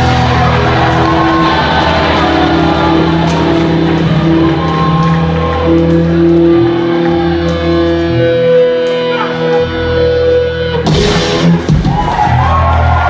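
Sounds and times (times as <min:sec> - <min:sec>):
bass guitar chords: 0:00.0 - 0:13.0
distorted electric guitar: 0:00.0 - 0:13.0
steady drum beat: 0:10.8 - 0:12.4.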